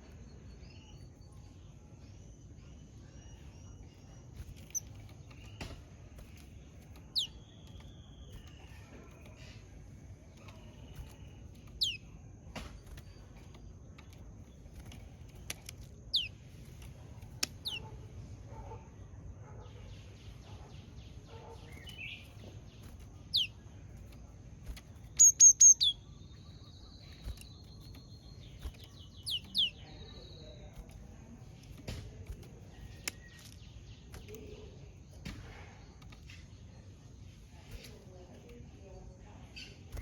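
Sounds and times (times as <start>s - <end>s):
bird ticking notes: 21.7s - 34.8s.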